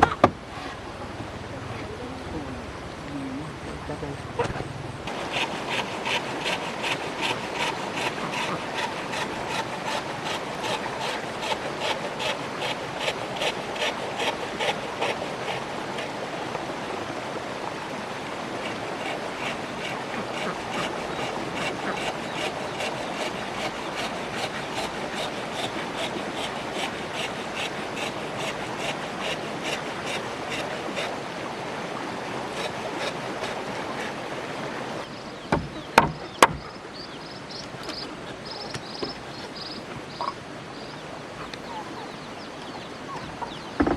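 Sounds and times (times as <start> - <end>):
hand tool rasping wood: 5.1 - 16.2, 18.6 - 31.3, 32.4 - 34.3, 35.4 - 42.1.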